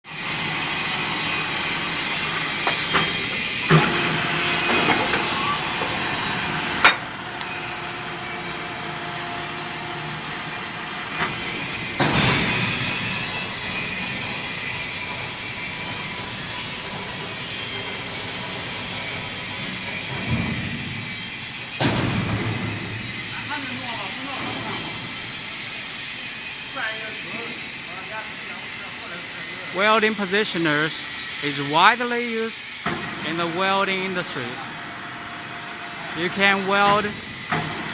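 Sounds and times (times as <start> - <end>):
industrial machinery hissing: 0.1 - 37.9
sharp metallic knocks: 6.8 - 7.2.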